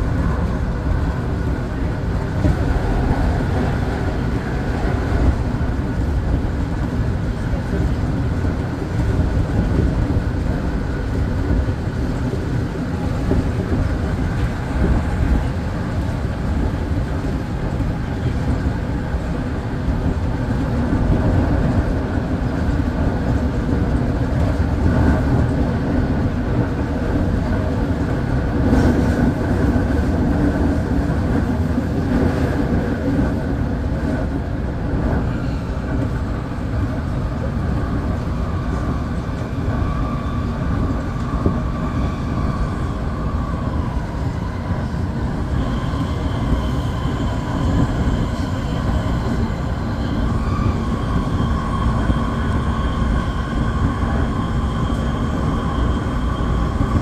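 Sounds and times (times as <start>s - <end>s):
faint train whine: 0.0s - 57.0s
train wheels rumbling on rail: 0.0s - 57.0s.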